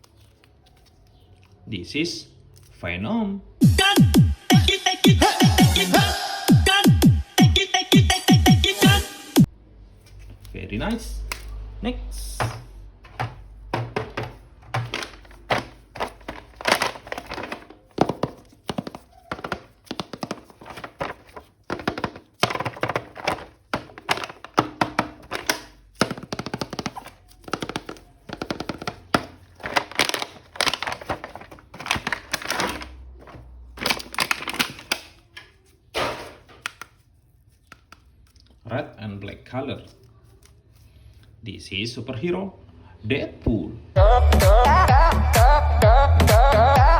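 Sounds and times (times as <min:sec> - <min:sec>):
plastic clicks and knocks: 0:12.4 - 0:35.5
packaging rustling: 0:12.4 - 0:35.7.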